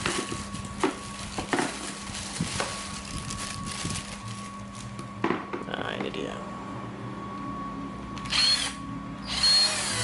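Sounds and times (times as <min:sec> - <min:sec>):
packaging handling clicks and knocks: 0:00.0 - 0:03.0.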